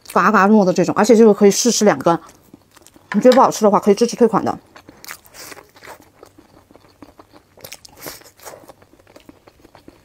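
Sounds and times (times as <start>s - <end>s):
person chewing corn: 2.3s - 3.1s, 4.7s - 10.0s.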